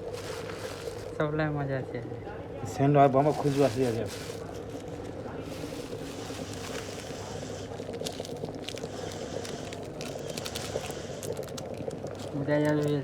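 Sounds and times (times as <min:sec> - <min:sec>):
electric kettle heating water: 0:00.0 - 0:13.0
kettle ticks and crackles: 0:02.9 - 0:13.0.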